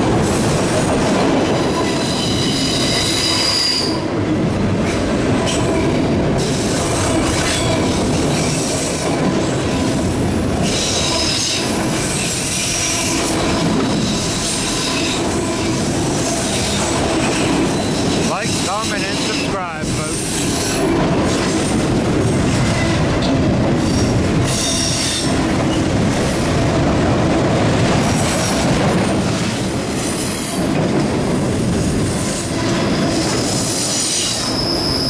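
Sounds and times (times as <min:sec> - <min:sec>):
freight train rumble and clatter: 0:00.0 - 0:35.0
wheel squeal: 0:01.6 - 0:04.0, 0:32.7 - 0:35.0.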